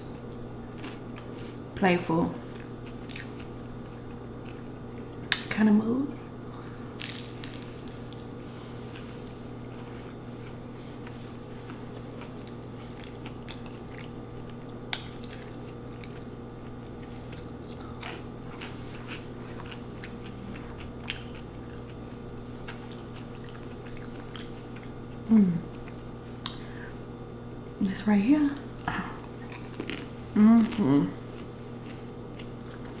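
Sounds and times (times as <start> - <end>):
low electrical hum: 0.0 - 33.0
chewing and mouth sounds: 0.1 - 1.7, 2.4 - 5.5, 6.5 - 26.7, 28.6 - 33.0
person humming mm: 25.3 - 25.7, 30.3 - 31.2.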